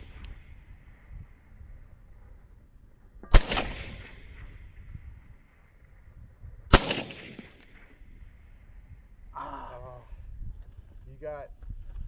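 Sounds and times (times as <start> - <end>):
rifle shots with echo: 3.2 - 5.0, 6.7 - 8.1.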